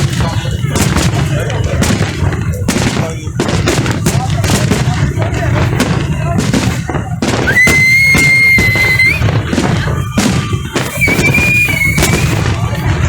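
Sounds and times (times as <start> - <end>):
crowd voices: 0.0 - 13.0
fireworks bursting and crackling: 0.0 - 13.0
high whistle: 7.4 - 9.3, 10.1 - 12.4.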